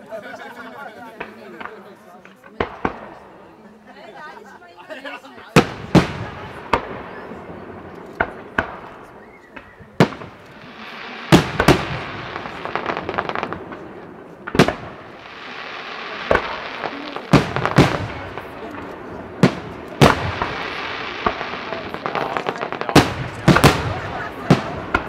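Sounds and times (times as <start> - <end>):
firework crackling: 5.5 - 25.0
firework hiss: 5.6 - 25.0
firework shells bursting with bangs: 5.6 - 25.0.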